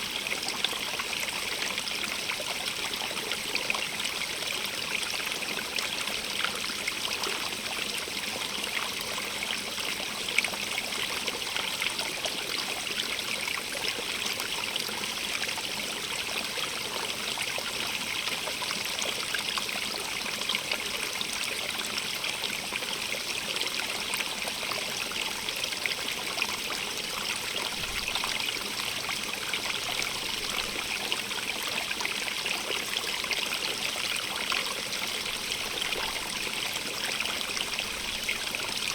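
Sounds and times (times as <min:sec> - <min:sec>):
running water rushing: 0:26.2 - 0:38.9.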